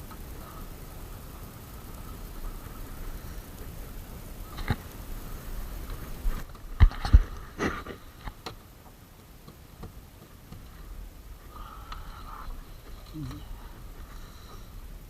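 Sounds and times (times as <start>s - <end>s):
sharp knocks and clicks: 6.5s - 10.7s.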